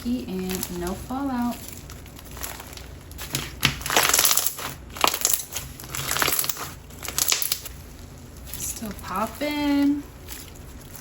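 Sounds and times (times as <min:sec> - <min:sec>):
crunchy slime squeezed by hand: 0:01.6 - 0:08.6.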